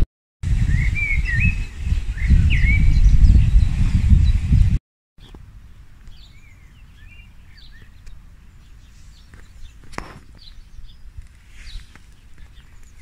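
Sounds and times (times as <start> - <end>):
small birds chirping: 5.2 - 13.0.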